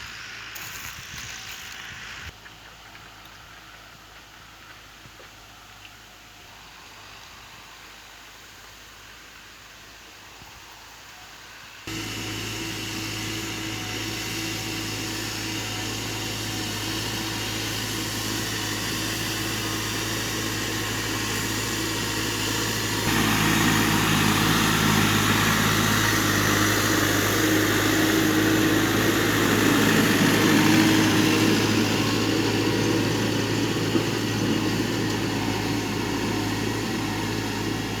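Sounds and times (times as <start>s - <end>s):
tractor engine running: 11.9s - 38.0s.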